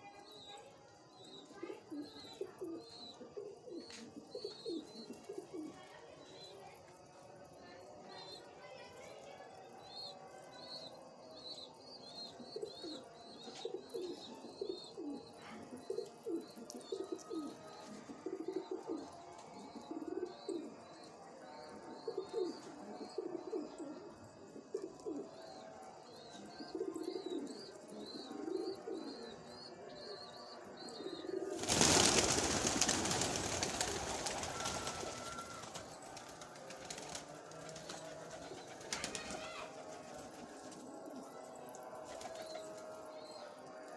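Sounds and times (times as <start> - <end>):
pigeons cooing: 1.8 - 5.9, 12.4 - 20.8, 26.6 - 29.4, 30.9 - 41.3.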